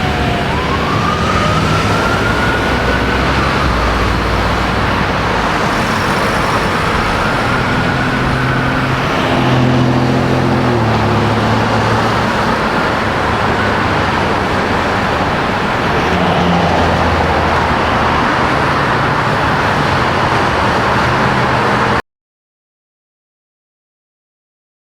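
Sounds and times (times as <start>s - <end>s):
road noise: 0.0s - 22.0s
vehicle engine shifting gears: 0.0s - 22.0s.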